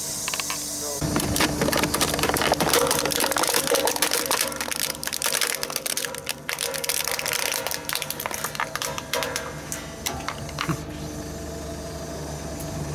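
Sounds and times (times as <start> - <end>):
plastic toy cracking under roller: 1.0 - 9.6.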